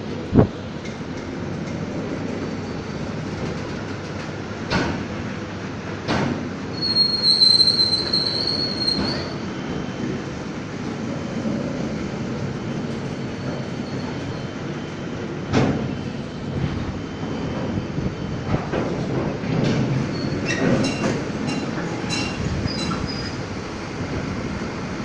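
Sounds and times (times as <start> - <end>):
train wheels rumbling on rails: 0.0 - 25.0
high-pitched wheel squeal: 6.7 - 9.4.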